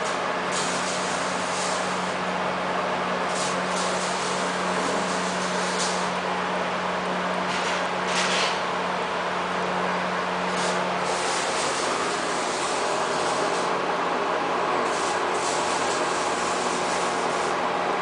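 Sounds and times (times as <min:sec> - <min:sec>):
plasma cutter hissing: 0:00.0 - 0:02.2, 0:03.2 - 0:06.2, 0:10.5 - 0:13.9, 0:14.8 - 0:17.6.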